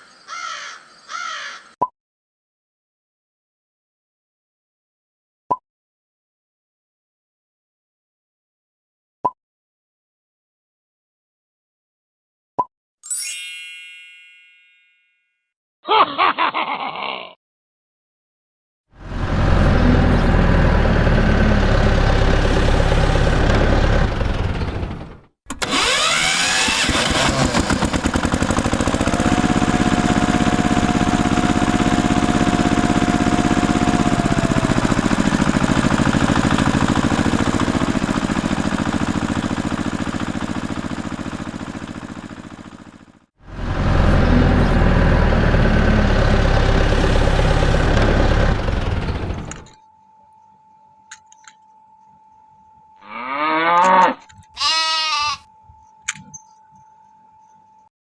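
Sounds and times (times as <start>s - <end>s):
tractor engine chugging and revving: 19.0s - 49.8s.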